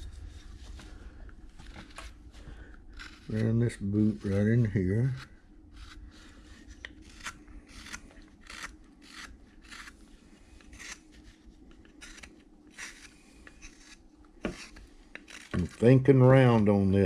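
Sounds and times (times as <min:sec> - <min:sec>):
carving blade slicing wood: 0:02.9 - 0:16.8.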